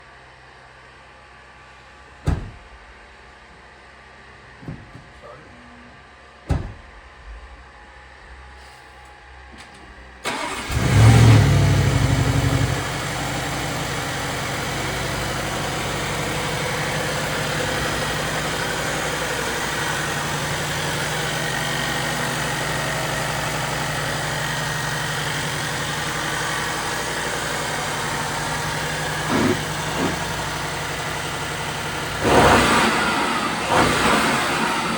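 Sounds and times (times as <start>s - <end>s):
car engine starting and idling: 8.6s - 34.9s
car engine revving: 10.3s - 34.9s.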